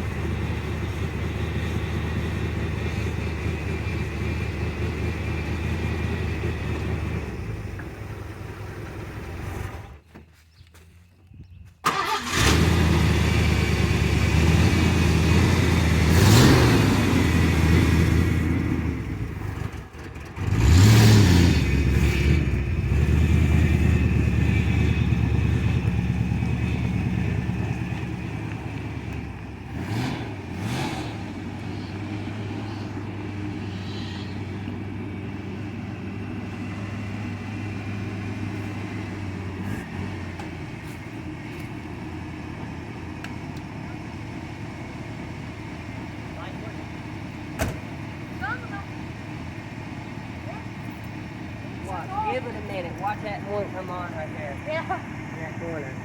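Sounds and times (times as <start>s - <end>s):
engine idling: 0.0s - 10.4s, 11.9s - 56.0s
engine starting and revving: 11.8s - 25.9s, 29.0s - 40.6s.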